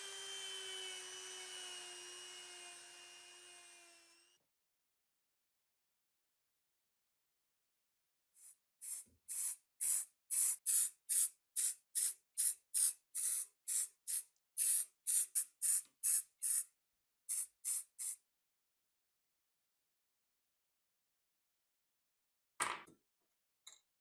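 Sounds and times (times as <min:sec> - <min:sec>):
aerosol spray can bursts: 0:17.3 - 0:18.2.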